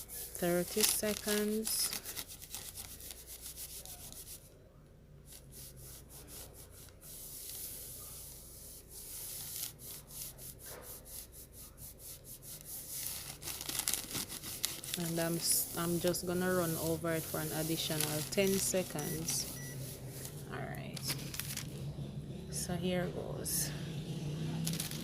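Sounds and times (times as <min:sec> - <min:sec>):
heat press plate scraping paper: 0:12.6 - 0:20.4.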